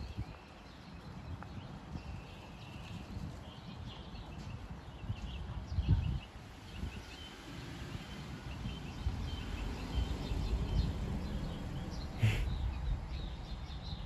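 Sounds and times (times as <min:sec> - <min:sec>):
small birds chirping: 0:00.0 - 0:14.0
low rumble on microphone: 0:08.5 - 0:14.0.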